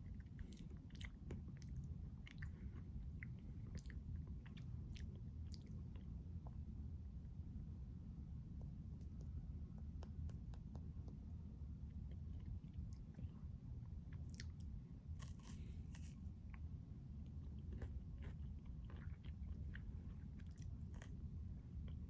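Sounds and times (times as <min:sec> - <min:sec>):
crunching and chewing: 0:00.0 - 0:06.6, 0:12.0 - 0:22.0
low steady hum: 0:00.0 - 0:22.0.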